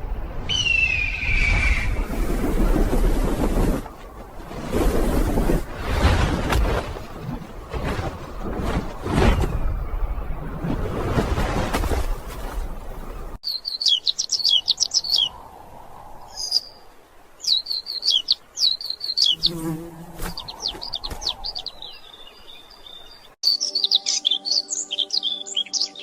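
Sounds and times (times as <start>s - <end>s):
soft music with held notes: 23.4s - 26.0s.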